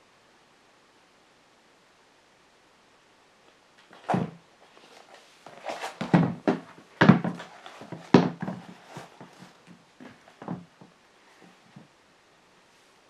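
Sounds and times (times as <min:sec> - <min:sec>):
rustling: 0:03.8 - 0:12.0
shoes soft thumps: 0:03.9 - 0:04.4, 0:05.0 - 0:11.9.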